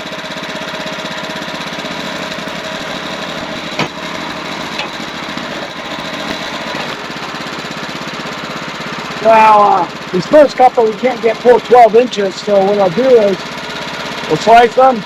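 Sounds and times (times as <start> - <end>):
sawmill engine running: 1.7 - 8.0.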